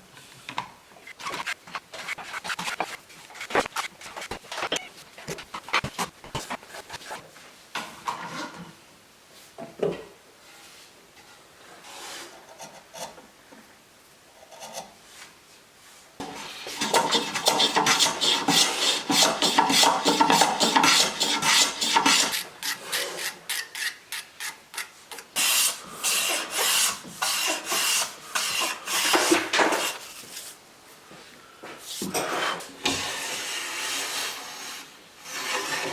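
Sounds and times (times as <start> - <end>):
hand tool rasping wood: 1.2 - 7.2, 16.6 - 30.0.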